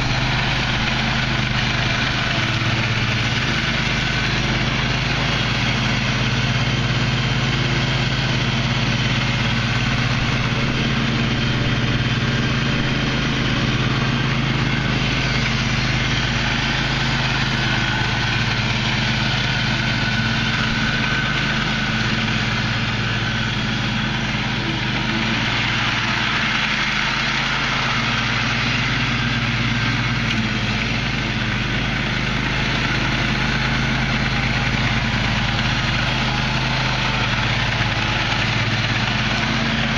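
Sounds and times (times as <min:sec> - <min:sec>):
riding lawn mower engine: 0:00.0 - 0:39.9.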